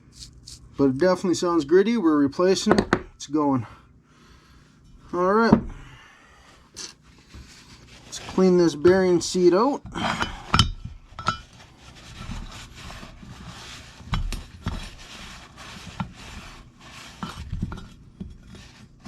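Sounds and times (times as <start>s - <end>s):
rubbing and scrubbing strokes: 6.8s - 9.6s, 11.3s - 19.0s
light metal clinks and knocks: 10.5s - 11.5s.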